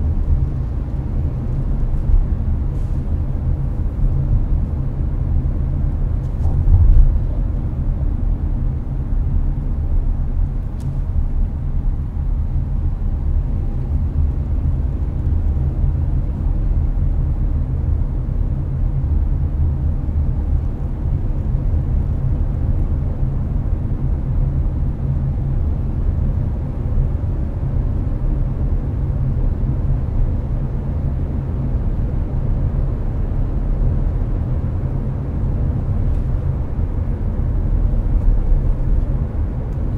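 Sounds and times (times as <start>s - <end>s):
air conditioner blowing: 0.0s - 39.9s
road and engine rumble: 0.0s - 39.9s
thump: 6.4s - 7.4s.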